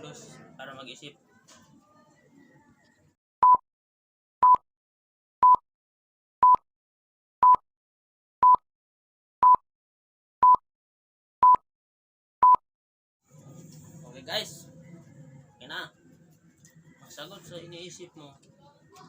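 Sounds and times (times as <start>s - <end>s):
electronic countdown beeps: 3.4s - 3.6s, 4.4s - 4.6s, 5.4s - 5.6s, 6.4s - 6.6s, 7.4s - 7.6s, 8.4s - 8.6s, 9.4s - 9.6s, 11.4s - 11.6s.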